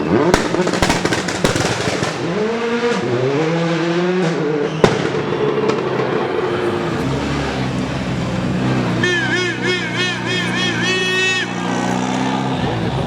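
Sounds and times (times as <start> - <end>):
exhaust pops and bangs: 0.0 - 3.3, 4.2 - 9.1
rally car engine revving: 0.0 - 13.0.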